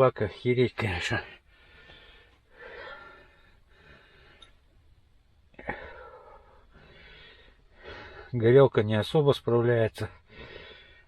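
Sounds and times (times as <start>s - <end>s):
person breathing: 1.3s - 4.8s, 5.5s - 8.4s, 10.2s - 11.0s.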